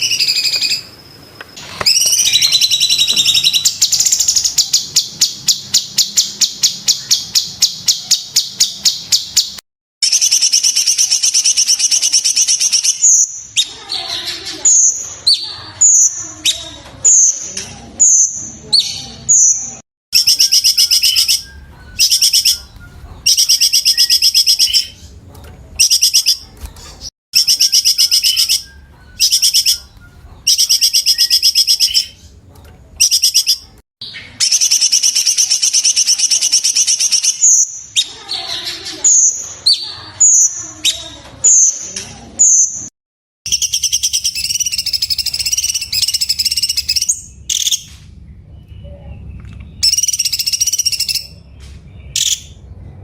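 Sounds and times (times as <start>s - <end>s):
bird singing rapid trills: 0.0s - 1.1s, 1.9s - 14.0s, 18.0s - 25.2s, 27.4s - 32.4s, 33.0s - 41.8s, 43.5s - 47.8s, 48.5s - 52.6s.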